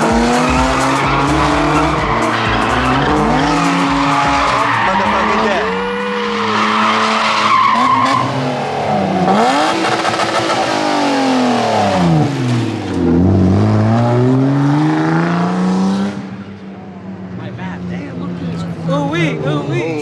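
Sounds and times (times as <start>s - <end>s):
tyres squealing and skidding: 0.0s - 13.8s
car engine revving hard: 0.0s - 20.0s.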